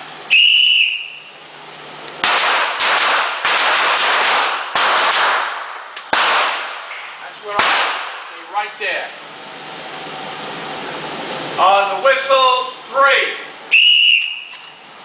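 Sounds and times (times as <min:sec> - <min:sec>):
whistle blast: 0:00.3 - 0:01.4, 0:13.7 - 0:14.8
echoing handgun shots: 0:02.2 - 0:06.9, 0:07.5 - 0:08.4.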